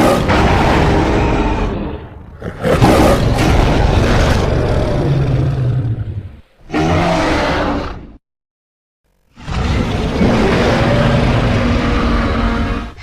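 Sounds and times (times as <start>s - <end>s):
creature roars: 0.0s - 8.2s, 9.3s - 13.0s.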